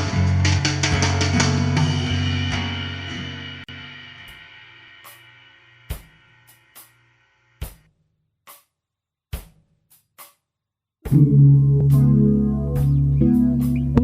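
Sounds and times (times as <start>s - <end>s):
held rock chord: 0.0s - 4.3s, 11.1s - 14.0s
drum kit strikes: 0.0s - 7.9s, 11.0s - 14.0s.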